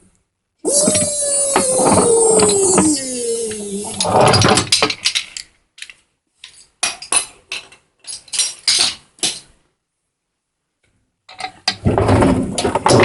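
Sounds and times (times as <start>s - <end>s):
falling creak: 0.7s - 4.6s.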